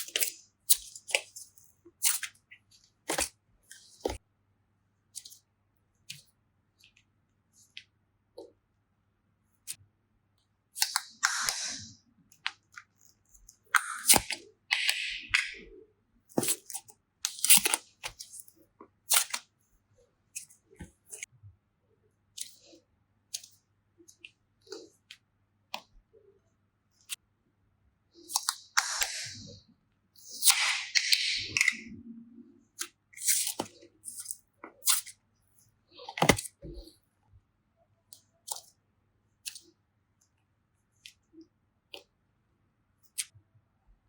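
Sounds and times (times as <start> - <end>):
soft squishes of slime: 9.4 - 30.6, 31.2 - 42.2.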